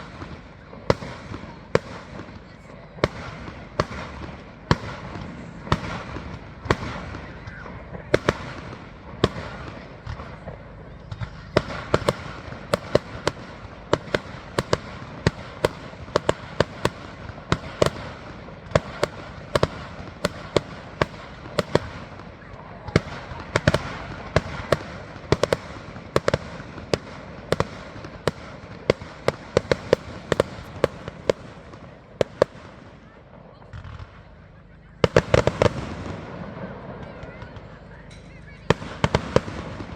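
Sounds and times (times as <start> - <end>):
firework bangs: 0.0 - 39.9
fireworks crackle and rumble: 0.0 - 39.9.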